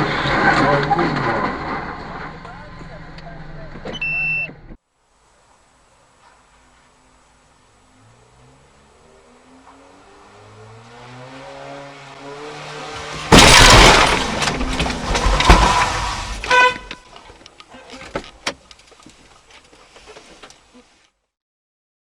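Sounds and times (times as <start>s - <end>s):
road collision crash: 0.0s - 2.5s, 11.2s - 17.4s
vehicle engine speeding up: 7.4s - 16.4s
debris clattering: 12.9s - 19.5s.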